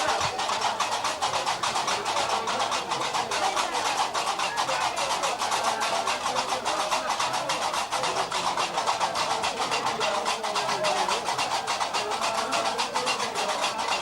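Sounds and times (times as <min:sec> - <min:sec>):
faint voices: 0:00.0 - 0:14.0.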